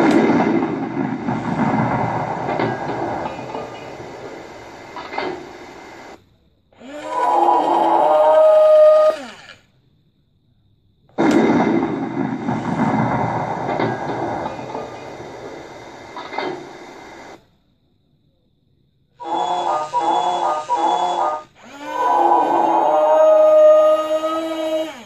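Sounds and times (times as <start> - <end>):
rough mechanical tank running sound: 0.0 - 6.2, 11.2 - 17.4.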